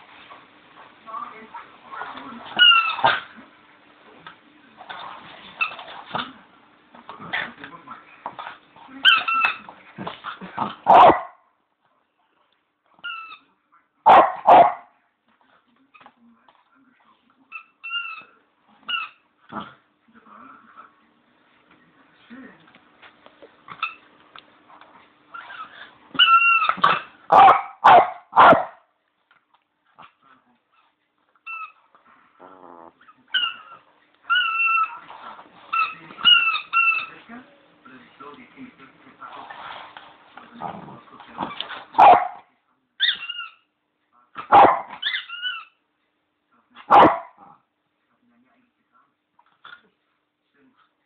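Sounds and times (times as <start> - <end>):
squeaky toy squeaks: 2.5 - 3.2, 9.0 - 9.6, 13.0 - 13.4, 17.5 - 18.3, 18.9 - 19.2, 25.3 - 27.1, 31.4 - 31.8, 33.3 - 35.0, 35.7 - 37.2, 43.0 - 43.7, 45.0 - 45.8
dog barking: 10.9 - 11.4, 14.0 - 14.9, 26.8 - 28.9, 42.0 - 42.5, 44.4 - 45.0, 46.9 - 47.4
dog growling low: 32.0 - 33.1, 40.5 - 41.6.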